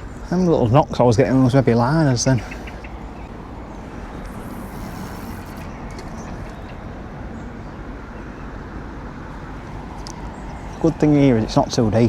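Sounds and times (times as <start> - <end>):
faint hum: 2.6 - 7.8.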